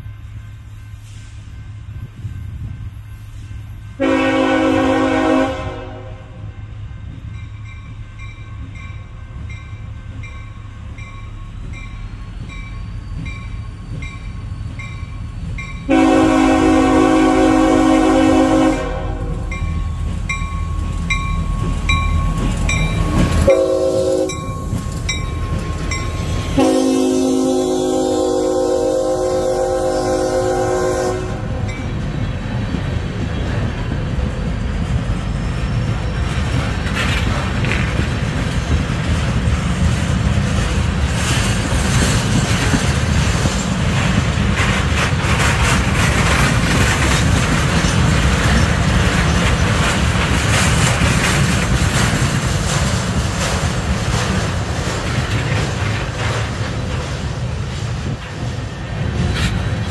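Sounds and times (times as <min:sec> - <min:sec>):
train wheels rumbling and clacking: 0:00.0 - 0:59.9
train horn: 0:03.9 - 0:06.8, 0:15.9 - 0:19.6, 0:23.2 - 0:24.5, 0:26.3 - 0:31.8.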